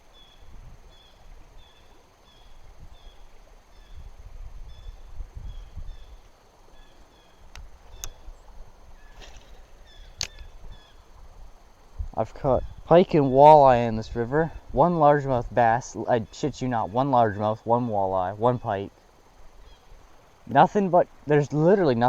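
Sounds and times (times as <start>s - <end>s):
wind rumble on microphone: 0.2s - 1.8s, 2.4s - 6.3s, 9.9s - 17.6s
sharp clicks: 10.2s - 10.5s.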